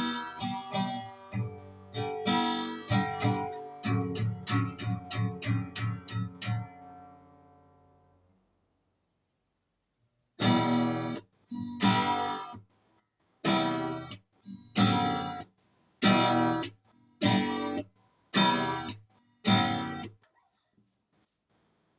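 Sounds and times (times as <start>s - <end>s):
acoustic guitar chords strummed: 0.0s - 8.3s, 10.4s - 12.6s, 13.4s - 20.2s.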